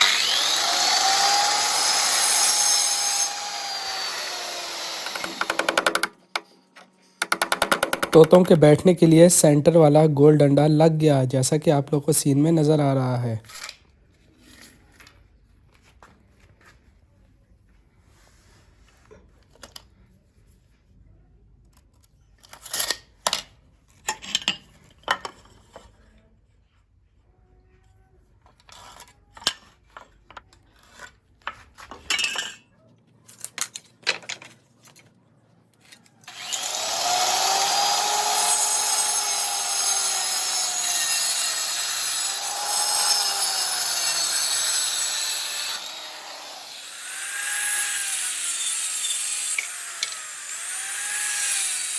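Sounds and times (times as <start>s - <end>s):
power tool whining: 0.0s - 6.4s, 36.3s - 51.9s
small hard parts clicking and knocking: 5.0s - 8.9s.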